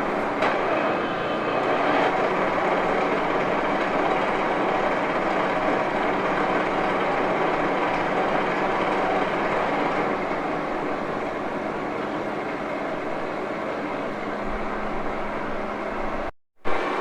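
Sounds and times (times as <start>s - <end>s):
lathe gears humming: 0.0s - 13.1s.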